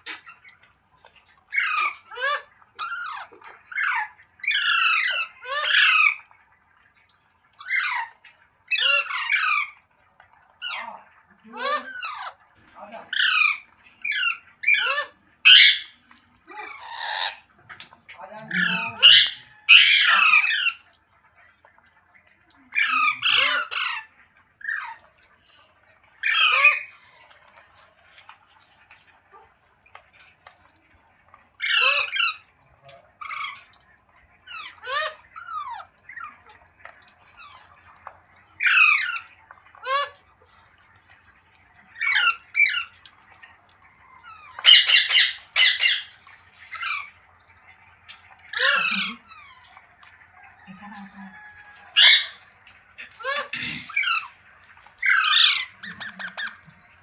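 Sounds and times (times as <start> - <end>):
parrot squawking: 1.5 - 6.2, 7.6 - 9.8, 11.5 - 17.5, 18.2 - 20.8, 22.7 - 25.0, 26.2 - 27.0, 31.6 - 32.5, 33.2 - 33.7, 34.4 - 36.6, 38.6 - 40.2, 41.9 - 43.0, 44.2 - 47.1, 48.4 - 49.8, 50.6 - 57.0.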